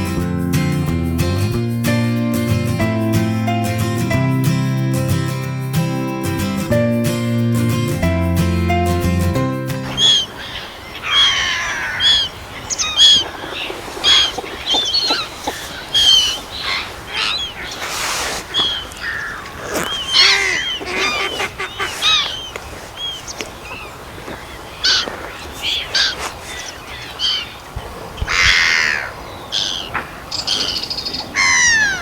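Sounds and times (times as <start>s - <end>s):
birds calling: 9.8s - 32.0s.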